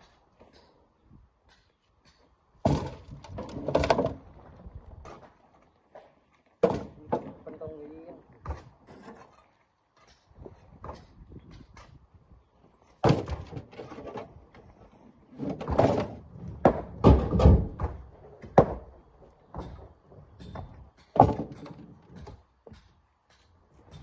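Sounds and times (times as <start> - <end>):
rocks thudding into metal truck bed: 2.6 - 4.2, 13.0 - 13.8, 15.4 - 18.9, 20.5 - 21.8.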